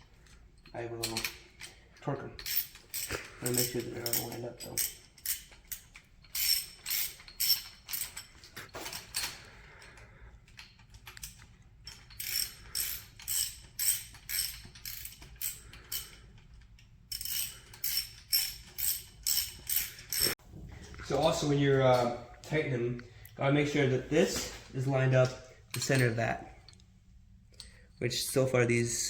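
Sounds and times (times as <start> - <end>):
socket ratchet clicking: 10.6 - 16.2, 17.1 - 20.4.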